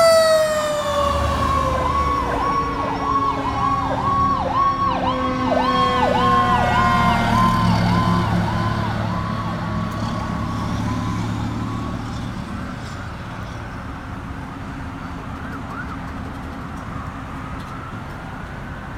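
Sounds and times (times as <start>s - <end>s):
lower siren tone sliding downward: 0.0s - 12.3s
fire truck siren yelping: 0.0s - 18.9s
heavy truck engine rumbling: 0.0s - 18.9s.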